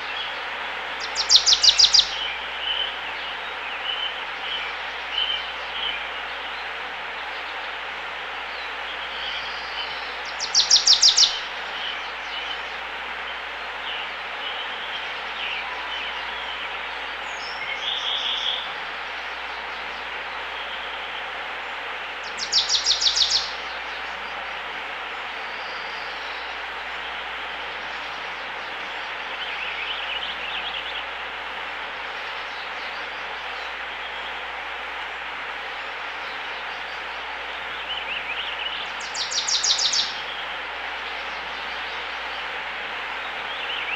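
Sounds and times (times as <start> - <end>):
small birds chirping: 0.0 - 6.2, 8.6 - 12.8, 22.1 - 24.4, 36.1 - 42.6
background hiss: 0.0 - 43.9.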